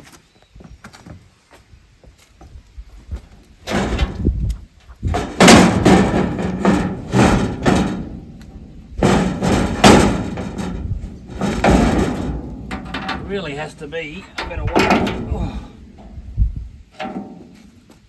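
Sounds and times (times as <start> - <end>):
heavy metal parts clunking: 3.6 - 4.4, 5.0 - 17.9.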